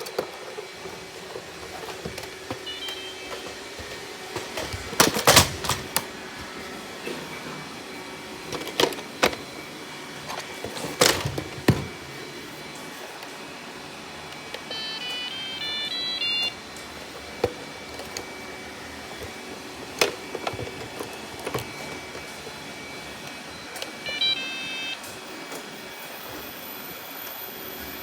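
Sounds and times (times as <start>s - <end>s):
robot vacuum humming: 0.0s - 28.0s
electronic beeping tune: 2.6s - 3.4s, 24.1s - 25.0s.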